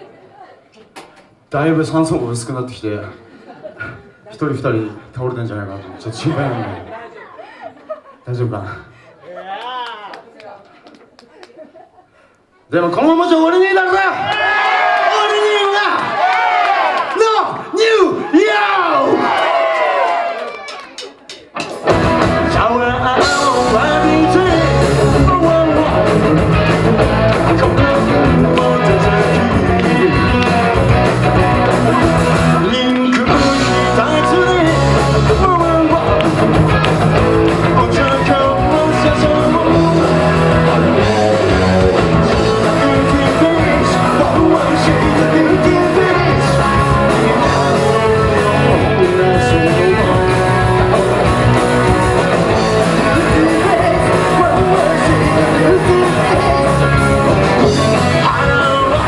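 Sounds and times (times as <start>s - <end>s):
drums: 17.0s - 59.0s
electric guitar: 21.5s - 59.0s
bass guitar: 21.6s - 59.0s
person singing: 22.0s - 59.0s.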